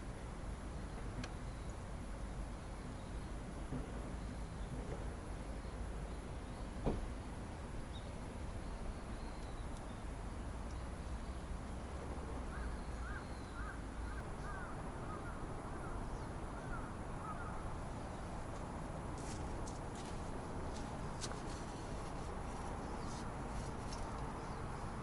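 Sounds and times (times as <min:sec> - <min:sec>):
outdoor background hiss: 0:00.0 - 0:25.0.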